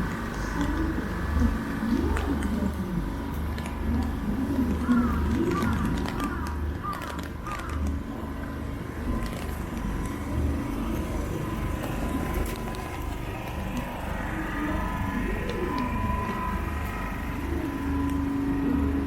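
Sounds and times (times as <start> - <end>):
steady low rumble: 0.0 - 19.0
car traffic: 4.8 - 19.0.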